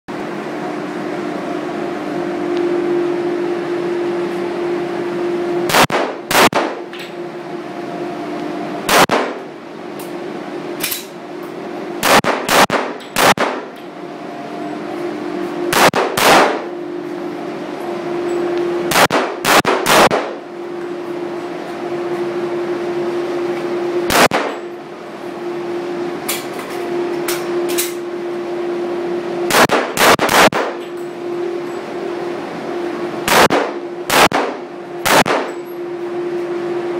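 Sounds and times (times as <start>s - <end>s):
steady hum: 0.1s - 36.9s
pistol shots: 5.7s - 6.8s, 8.9s - 9.4s, 12.0s - 13.7s, 15.7s - 16.6s, 18.9s - 20.3s, 24.1s - 24.6s, 29.5s - 30.7s, 33.3s - 35.5s.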